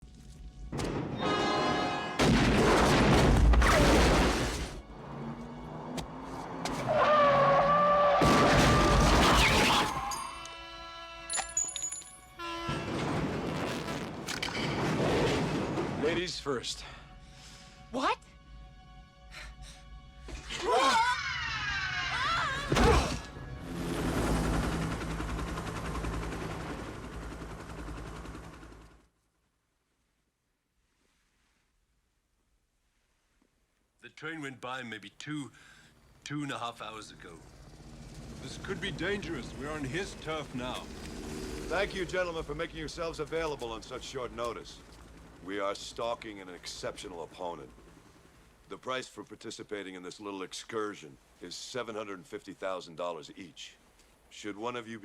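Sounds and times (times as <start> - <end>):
low hum: 23.2 - 29.1.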